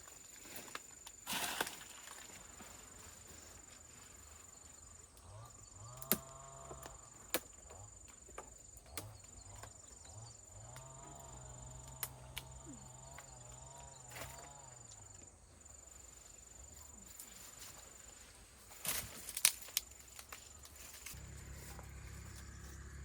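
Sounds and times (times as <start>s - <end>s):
rustle: 0.0s - 23.0s
high insect trill: 0.1s - 23.0s
low wavering hum: 20.7s - 23.0s.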